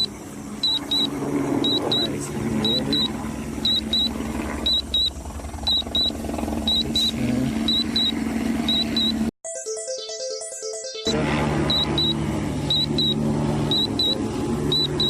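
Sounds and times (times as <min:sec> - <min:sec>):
short high electronic beeps: 0:00.0 - 0:05.1, 0:05.7 - 0:07.1, 0:07.7 - 0:15.0
steady low rumble: 0:00.0 - 0:09.3.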